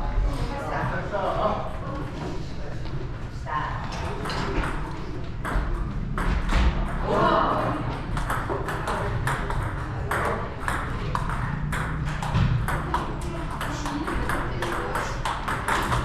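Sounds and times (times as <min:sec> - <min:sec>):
table tennis ball hits: 0:08.1 - 0:16.0.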